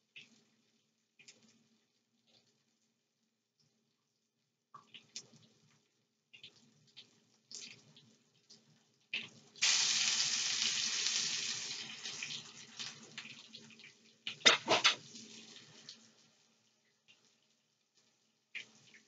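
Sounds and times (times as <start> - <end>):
food sizzling in hot oil: 9.6 - 15.9.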